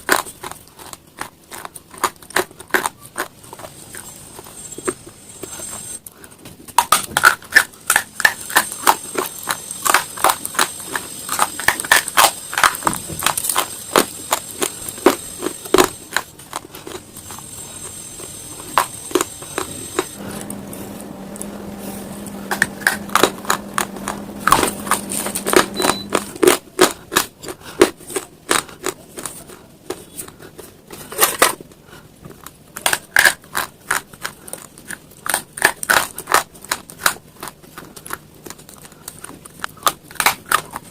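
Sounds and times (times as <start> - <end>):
stone being chewed crunching: 0.0 - 20.6, 22.4 - 40.9
steady low hum: 7.7 - 28.4.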